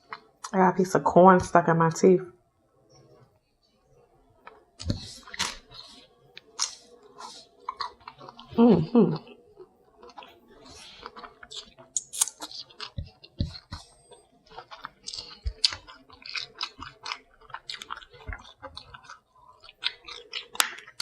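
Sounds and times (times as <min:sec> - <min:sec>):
wet chewing and lip smacking: 0:04.4 - 0:21.0.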